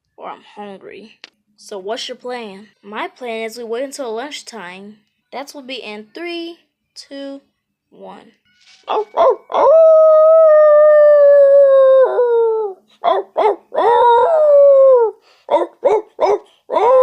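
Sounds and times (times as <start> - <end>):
dog yipping: 8.9 - 9.7, 13.0 - 13.9, 15.5 - 17.0
dog howling: 8.9 - 17.0.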